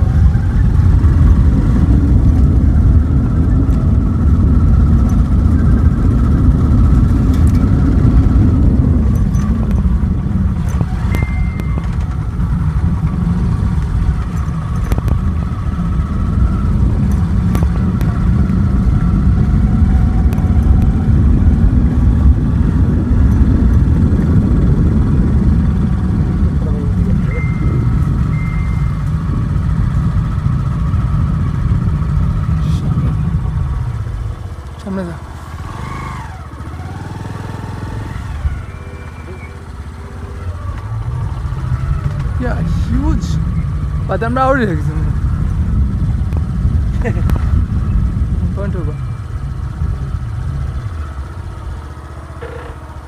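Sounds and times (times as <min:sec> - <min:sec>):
vehicle engine and road rumble: 0:00.0 - 0:53.0
short high beep: 0:11.0 - 0:12.0, 0:27.2 - 0:29.1.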